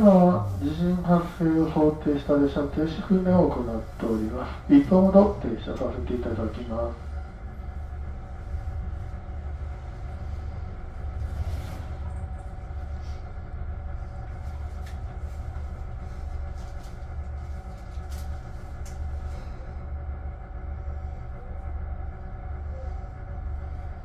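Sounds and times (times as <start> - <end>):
electric train humming: 0.0 - 24.0.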